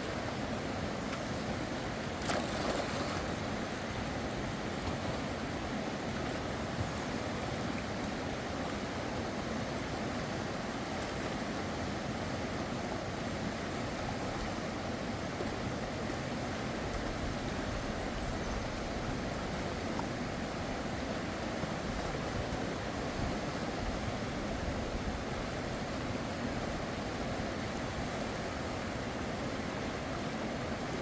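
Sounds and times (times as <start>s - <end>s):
river water rushing: 0.0s - 31.0s.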